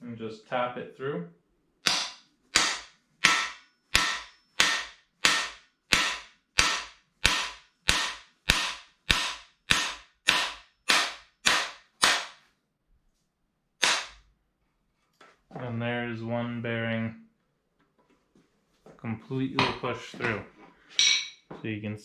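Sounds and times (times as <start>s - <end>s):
hammer striking metal rod: 1.8s - 12.5s, 13.8s - 14.2s.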